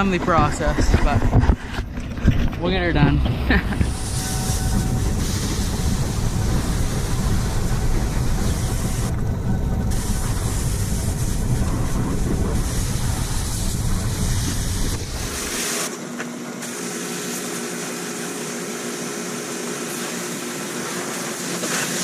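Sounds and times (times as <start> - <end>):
low rumble: 0.0 - 15.6
pressure washer water hiss: 3.5 - 9.2, 9.8 - 15.9, 16.6 - 22.0.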